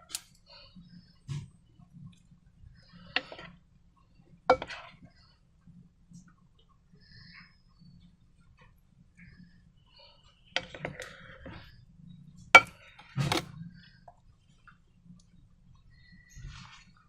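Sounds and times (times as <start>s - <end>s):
objects clacking and knocking: 1.2s - 5.3s, 10.6s - 14.8s.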